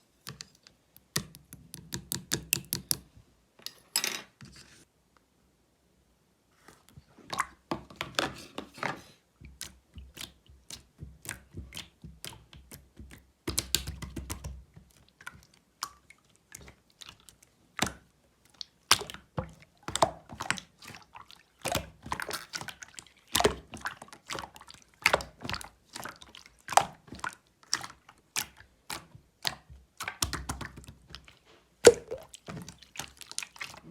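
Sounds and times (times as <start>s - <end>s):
slime squished by hand: 21.7s - 33.9s.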